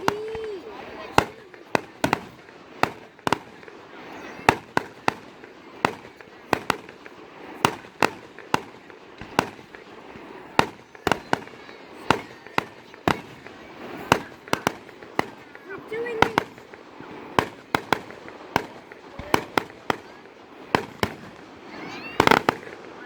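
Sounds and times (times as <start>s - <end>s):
fireworks bangs and pops: 0.0s - 23.0s.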